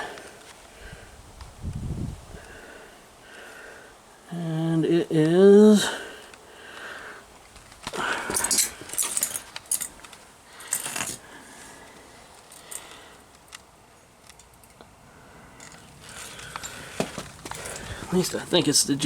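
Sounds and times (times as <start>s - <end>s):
rustling handling sounds: 7.4s - 13.6s, 15.6s - 18.8s
small metallic jingle: 8.2s - 11.2s, 15.6s - 18.4s.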